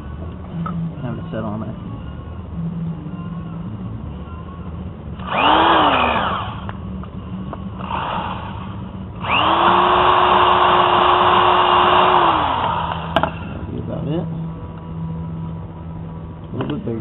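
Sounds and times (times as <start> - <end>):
drill boring through metal: 5.2 - 6.6, 9.2 - 13.2.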